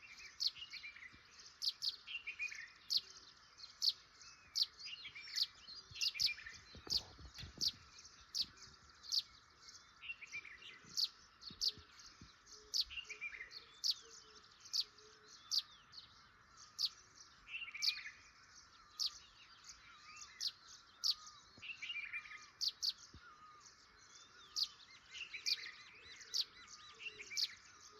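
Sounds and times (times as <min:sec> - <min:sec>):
soft bird twittering: 0:00.0 - 0:27.9
songbirds chirping: 0:00.0 - 0:27.9.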